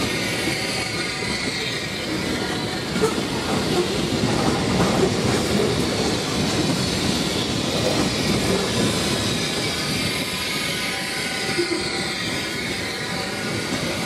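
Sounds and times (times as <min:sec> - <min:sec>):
high wheel squeal: 0:00.0 - 0:04.0, 0:07.4 - 0:14.0
train wheels rumbling on rail: 0:00.0 - 0:14.0
clickety-clack of rail joints: 0:01.2 - 0:14.0.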